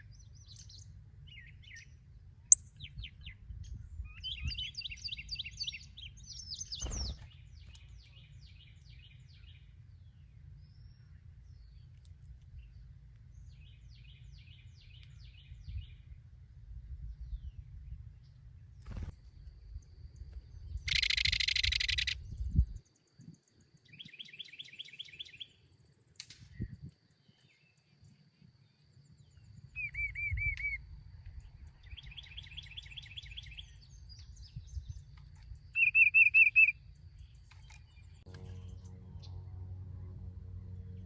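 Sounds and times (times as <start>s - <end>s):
songbirds singing and chirping: 0.0s - 41.0s
low hum: 36.8s - 41.0s
low rumble: 38.1s - 41.0s.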